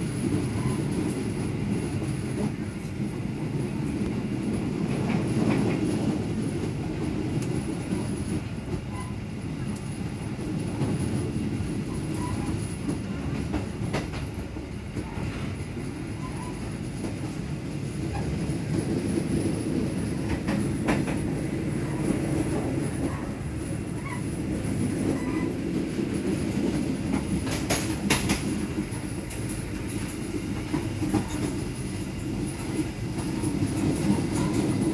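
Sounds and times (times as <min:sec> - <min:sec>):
train wheels rumbling on rails: 0:00.0 - 0:34.9
sharp rail clacks: 0:27.1 - 0:28.6.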